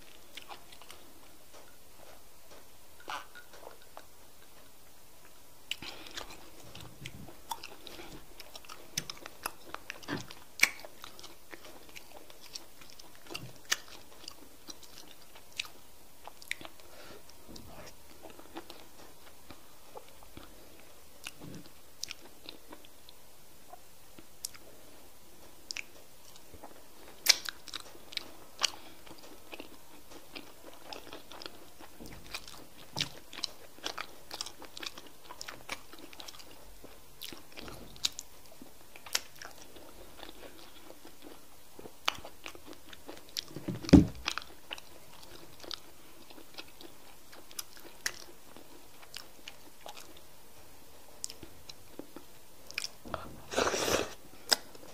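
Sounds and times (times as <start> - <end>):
wet chewing and smacking: 0.0 - 24.8, 25.4 - 50.3, 51.2 - 53.3
thump: 43.6 - 44.2.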